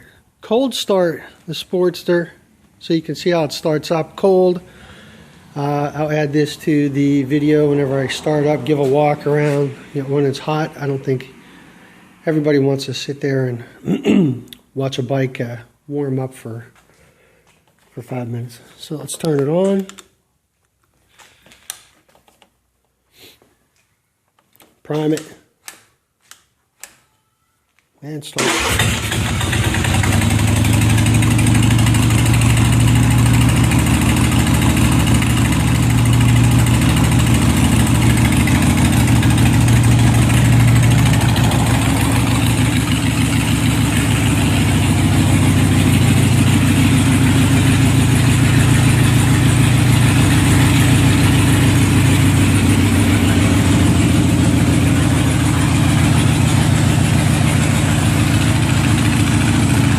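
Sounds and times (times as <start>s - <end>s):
motorcycle engine idling: 28.6s - 59.9s.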